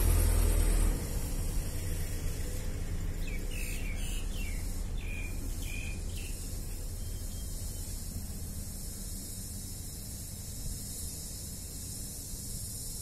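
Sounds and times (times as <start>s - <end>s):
bird chirping: 3.1s - 8.8s.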